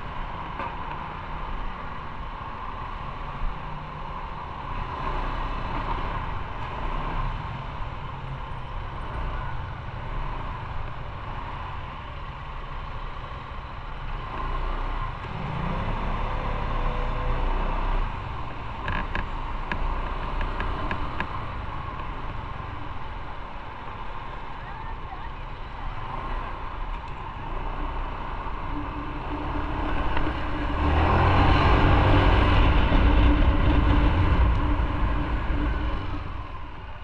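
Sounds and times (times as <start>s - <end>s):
motorcycle engine: 5.1s - 37.0s
wind noise: 27.2s - 37.0s.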